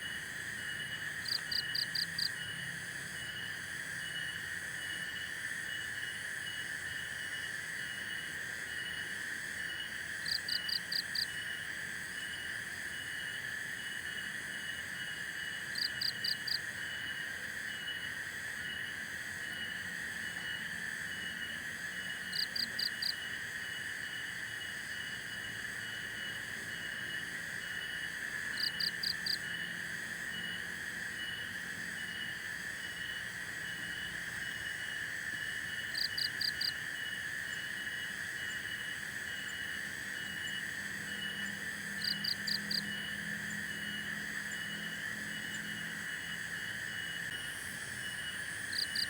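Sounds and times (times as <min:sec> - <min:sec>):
insect drone and chirping: 0:00.0 - 0:49.0.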